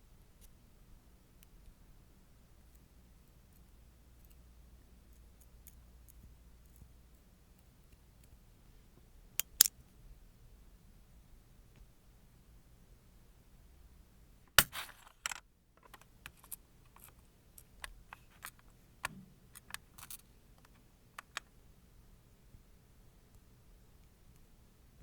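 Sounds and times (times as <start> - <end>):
small objects clicking: 19.5 - 21.5.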